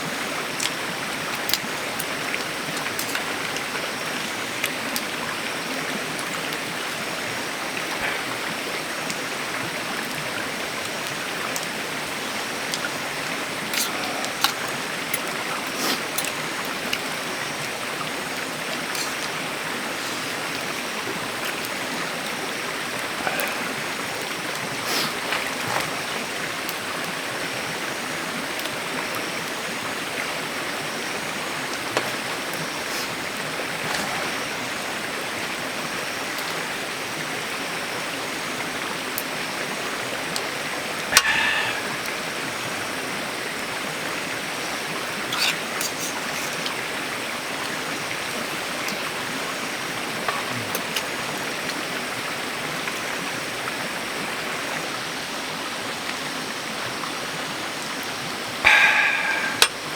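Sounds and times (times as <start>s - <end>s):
running water: 0.0s - 59.9s
faint sharp clicks or splashes: 10.0s - 11.8s.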